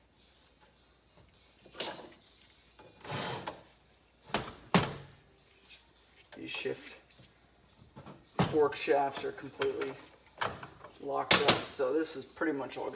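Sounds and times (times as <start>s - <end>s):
metal scrape: 2.8s - 3.7s.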